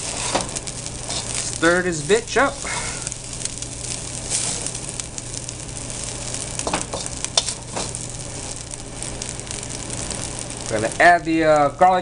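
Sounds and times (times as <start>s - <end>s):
rice sizzling in a wok: 0.0s - 12.0s.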